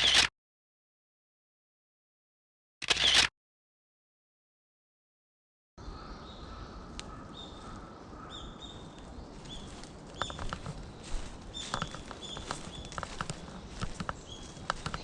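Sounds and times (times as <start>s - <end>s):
small birds calling: 5.8s - 15.0s
footsteps crunching on path: 8.5s - 15.0s.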